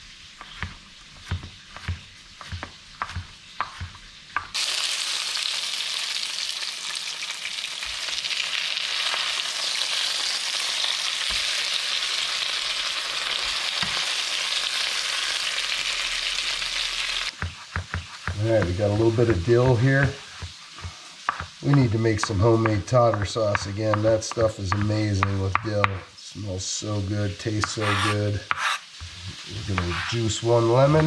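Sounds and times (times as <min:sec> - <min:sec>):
fish sizzling in a pan: 0:00.0 - 0:30.9
knife chopping on cutting board: 0:00.4 - 0:04.5, 0:17.4 - 0:18.8, 0:20.3 - 0:26.0, 0:27.6 - 0:28.8.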